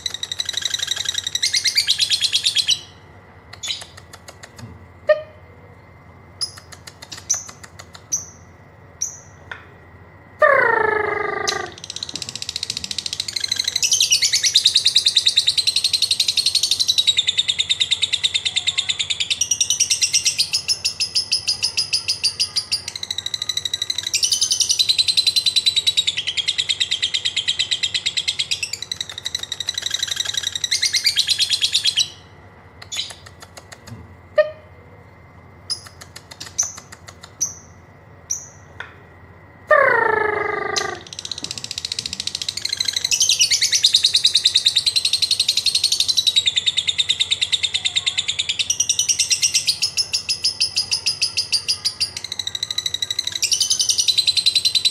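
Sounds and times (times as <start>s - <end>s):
lovebird chattering trill: 0.0s - 5.4s, 6.3s - 9.4s, 10.4s - 34.7s, 35.7s - 38.7s, 39.6s - 54.9s
bird chirps: 0.0s - 5.5s, 10.4s - 33.7s, 39.7s - 54.9s.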